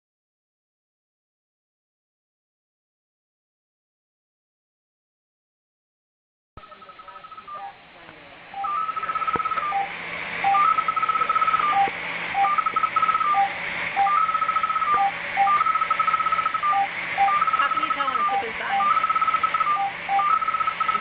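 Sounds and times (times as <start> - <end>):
rapid high-pitched beeps: 6.6 - 7.8, 8.6 - 21.0
low hum and hiss: 6.6 - 21.0
single lower beeps: 8.6 - 21.0.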